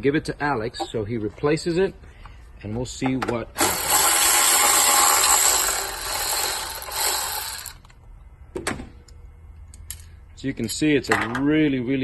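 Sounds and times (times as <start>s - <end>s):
powered ratchet running: 3.6s - 7.9s.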